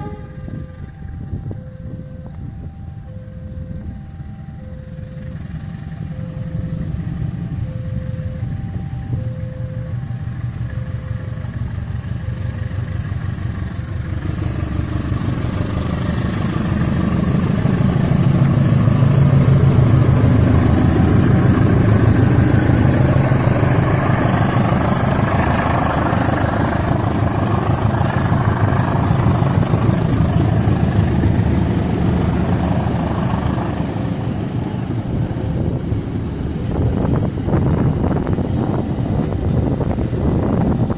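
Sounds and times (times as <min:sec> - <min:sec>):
faint two-tone signal: 0:00.0 - 0:12.7
diesel locomotive engine rumbling: 0:00.0 - 0:40.9.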